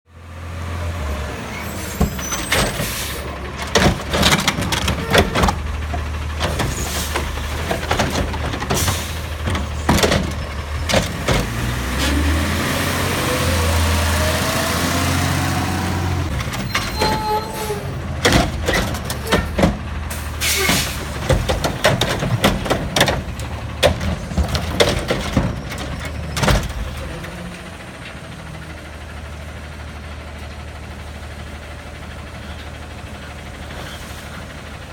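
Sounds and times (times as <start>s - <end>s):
garbage truck diesel engine: 0.1s - 34.9s
hydraulic whines: 1.5s - 3.3s, 8.8s - 21.1s
sharp bangs and clatters of bin: 2.0s - 12.2s, 16.4s - 27.0s.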